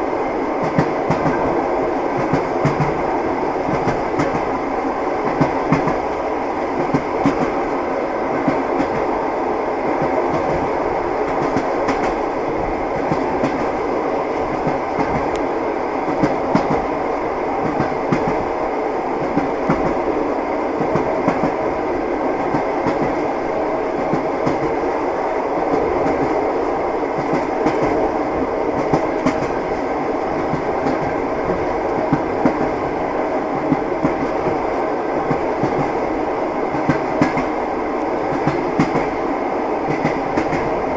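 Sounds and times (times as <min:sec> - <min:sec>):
train rumble inside carriage: 0:00.0 - 0:40.9
wheels clickety-clack over rail joints: 0:00.6 - 0:01.6, 0:02.2 - 0:04.6, 0:05.2 - 0:09.1, 0:10.0 - 0:12.2, 0:12.9 - 0:15.4, 0:16.1 - 0:16.9, 0:17.6 - 0:18.5, 0:19.2 - 0:20.1, 0:20.8 - 0:21.6, 0:22.4 - 0:23.4, 0:24.0 - 0:24.9, 0:25.6 - 0:26.4, 0:27.2 - 0:36.1, 0:36.7 - 0:37.6, 0:38.3 - 0:39.2, 0:39.9 - 0:40.8.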